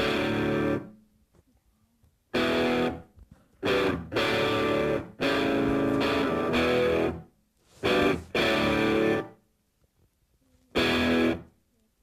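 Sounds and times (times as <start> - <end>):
electric guitar chords: 0.0 - 0.9, 2.3 - 7.2, 7.8 - 9.4, 10.8 - 11.5.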